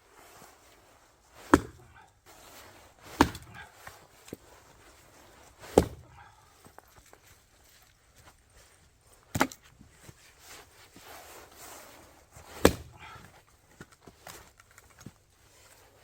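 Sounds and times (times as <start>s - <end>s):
axe chopping firewood: 1.4s - 4.4s, 5.6s - 6.4s, 9.3s - 9.7s, 11.3s - 14.4s.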